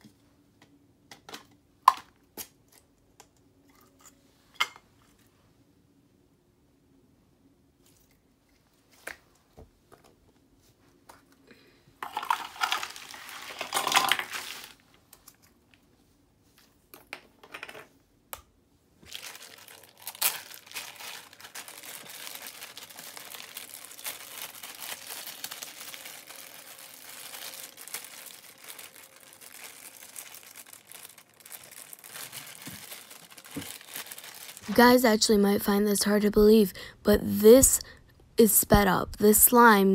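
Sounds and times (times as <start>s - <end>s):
plastic bag crinkling: 12.0s - 15.0s, 19.0s - 35.4s.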